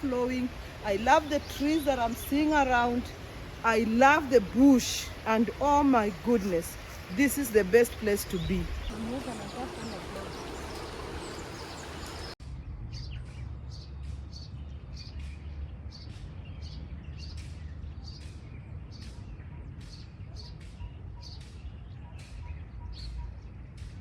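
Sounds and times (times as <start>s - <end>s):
bird chirping: 0.0s - 12.4s
low outdoor rumble: 0.0s - 19.0s.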